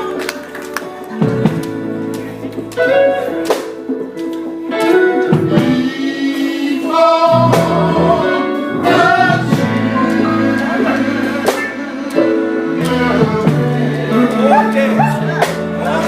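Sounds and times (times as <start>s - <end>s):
guitar playing: 0.0s - 16.0s
voices singing: 5.5s - 16.0s.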